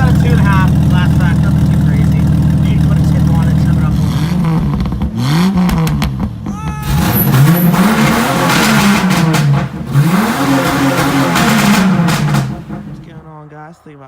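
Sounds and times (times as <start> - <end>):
car engine revving: 0.0 - 13.5
exhaust rasping rush: 0.0 - 14.0.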